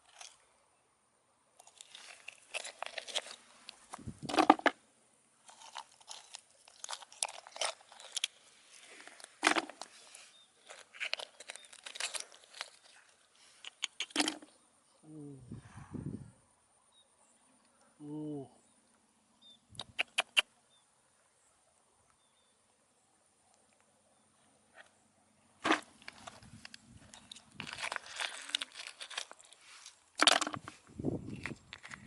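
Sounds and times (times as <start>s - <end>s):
crunching and rustling: 0.0s - 0.4s, 1.6s - 4.8s, 5.4s - 14.5s, 25.6s - 32.0s.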